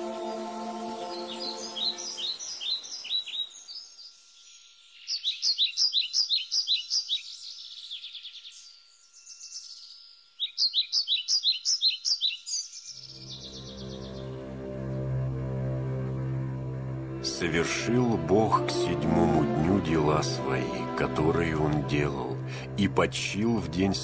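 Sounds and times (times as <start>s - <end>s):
soft background music: 0.0s - 2.8s, 13.1s - 24.0s
songbird singing: 0.0s - 24.0s.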